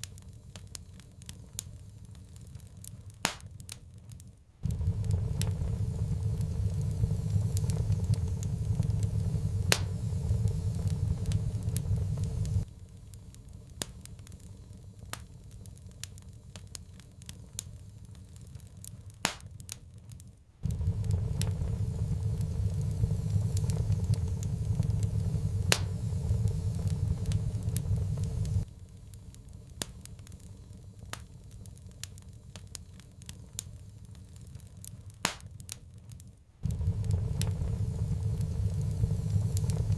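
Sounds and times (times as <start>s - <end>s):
wood fire crackling and popping: 0.0s - 39.9s
loud low rumble: 4.6s - 12.7s, 20.6s - 28.7s, 36.6s - 39.9s.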